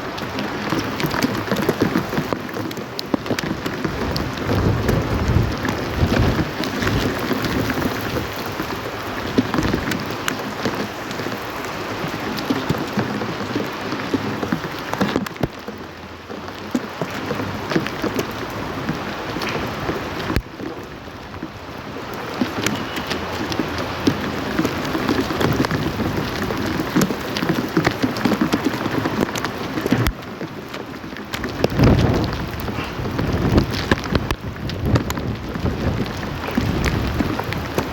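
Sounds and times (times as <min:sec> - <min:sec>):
rain pattering on a hard surface: 0:00.0 - 0:37.9.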